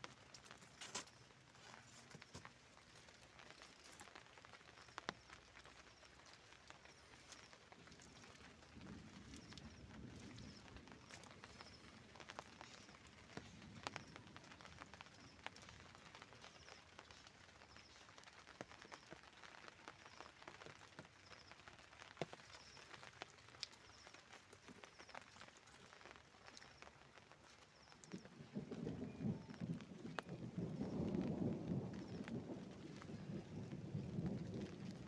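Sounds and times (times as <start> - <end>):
light ticks: 22.0 - 27.3.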